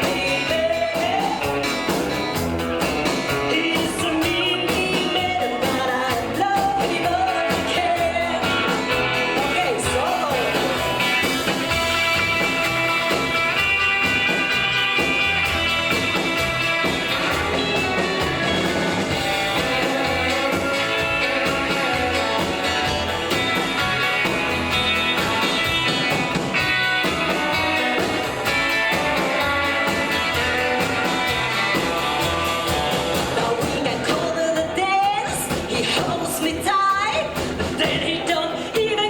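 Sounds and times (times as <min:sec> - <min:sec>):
bass: 0:00.0 - 0:39.0
steady drum beat: 0:00.0 - 0:39.0
lead guitar melody: 0:07.3 - 0:33.4.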